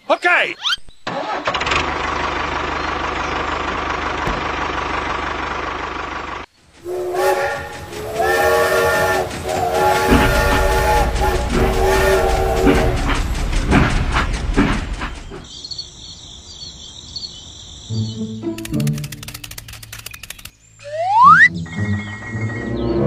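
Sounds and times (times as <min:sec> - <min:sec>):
low running rumble: 0:02.5 - 0:15.4
toy train whistle tooting: 0:06.8 - 0:13.2.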